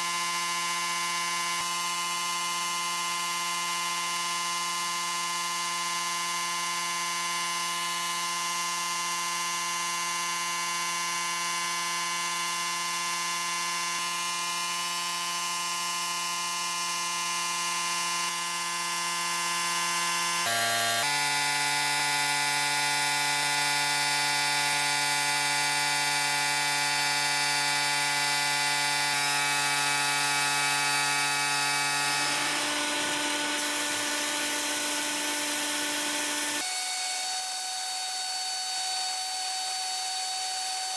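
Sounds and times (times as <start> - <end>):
power tool motor whining: 16.2 - 40.9.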